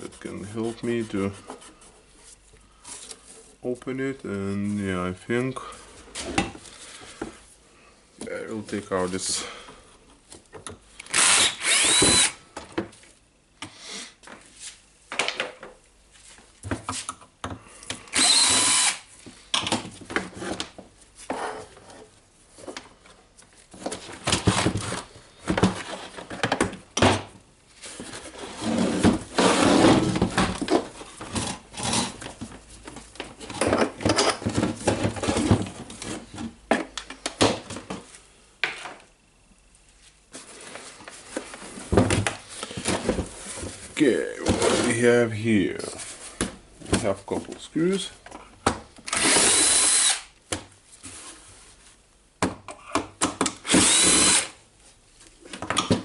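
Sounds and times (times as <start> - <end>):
cordless drill running: 11.1 - 12.4, 18.1 - 19.0, 49.1 - 50.3, 53.6 - 54.6.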